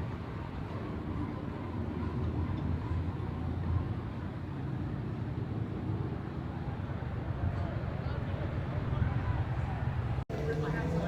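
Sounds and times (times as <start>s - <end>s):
passing motor vehicle rumble: 6.7s - 11.0s.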